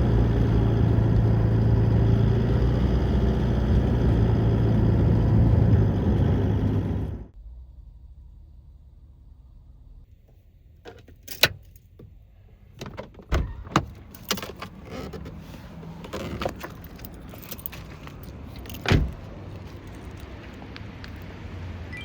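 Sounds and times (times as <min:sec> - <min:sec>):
keys jangling: 0:13.9 - 0:20.6.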